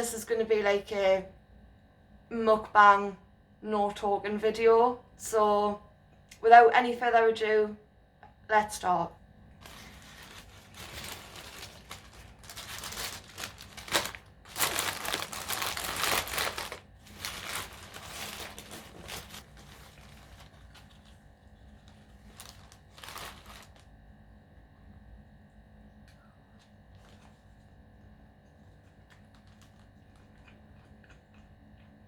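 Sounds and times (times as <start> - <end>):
food packaging crinkling: 9.5 - 24.0, 26.1 - 27.9, 28.5 - 31.6.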